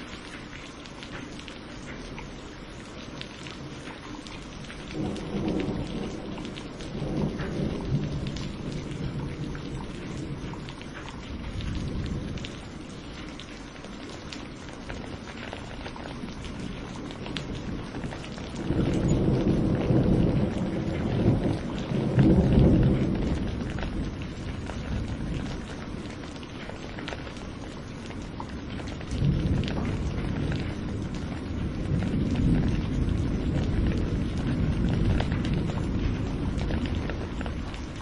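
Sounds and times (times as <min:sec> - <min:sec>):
rain hiss: 0:00.0 - 0:38.0
raindrop ticks: 0:00.0 - 0:38.0
rolling thunder: 0:04.7 - 0:12.7, 0:15.7 - 0:38.0.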